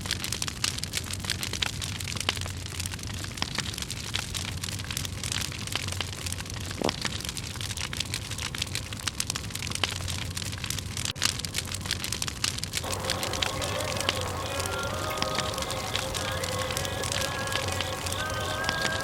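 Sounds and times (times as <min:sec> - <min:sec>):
campfire crackling and popping: 0:00.0 - 0:19.0
fire hissing: 0:05.0 - 0:19.0
rising whistle: 0:12.8 - 0:19.0
music: 0:12.9 - 0:19.0.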